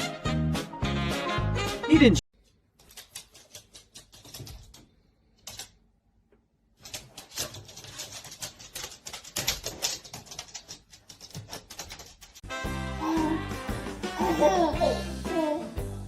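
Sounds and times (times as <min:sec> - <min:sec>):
rapid clicking and tapping: 0:06.8 - 0:12.4.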